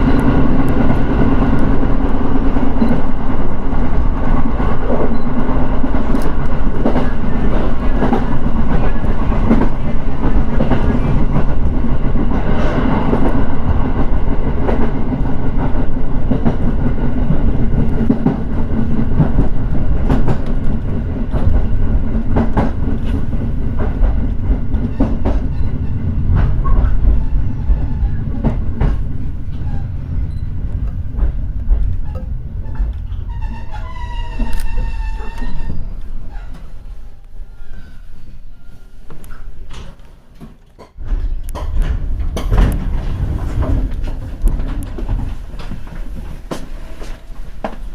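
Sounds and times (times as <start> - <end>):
train rumbling on rails: 0.0 - 47.9
wheels clicking over rail joints: 39.2 - 47.9.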